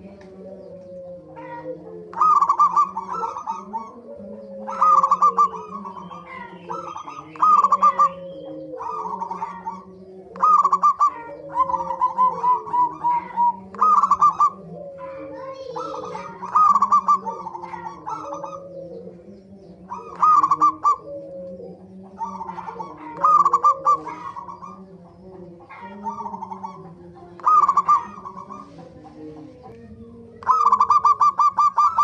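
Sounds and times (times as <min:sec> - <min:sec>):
doves rapid rolling coos: 0:00.0 - 0:32.0
soft low cooing: 0:00.0 - 0:32.0.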